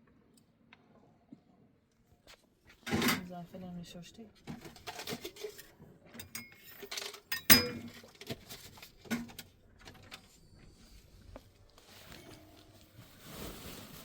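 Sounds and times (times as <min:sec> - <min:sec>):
objects knocking and clattering: 0:04.4 - 0:10.4.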